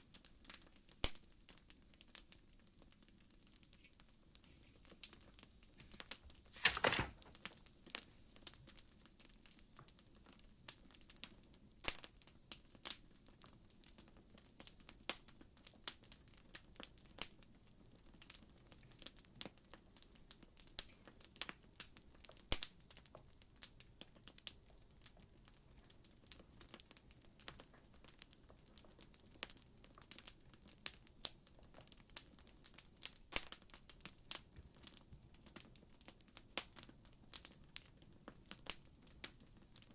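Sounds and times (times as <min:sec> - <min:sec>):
fire crackling: 0:18.5 - 0:39.9.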